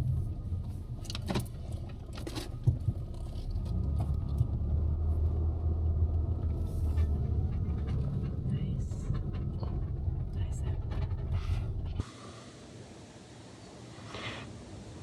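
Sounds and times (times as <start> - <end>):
car engine and road rumble: 0.0 - 15.0
light rattles: 6.3 - 12.0.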